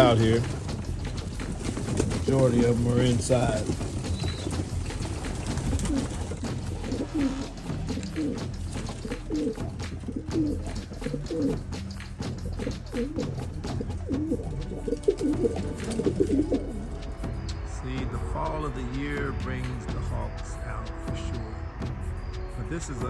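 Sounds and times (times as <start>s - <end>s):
pigeons cooing: 0.0s - 17.1s.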